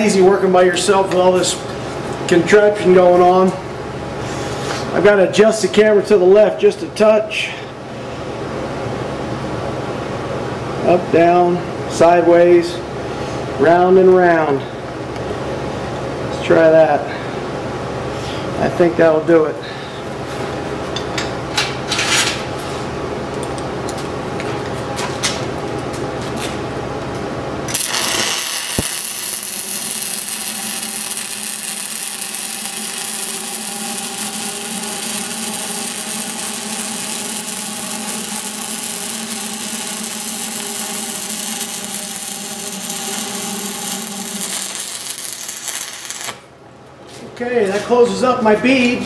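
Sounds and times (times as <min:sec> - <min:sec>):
low hum: 0:26.7 - 0:46.8
welding arc crackle: 0:27.7 - 0:46.6.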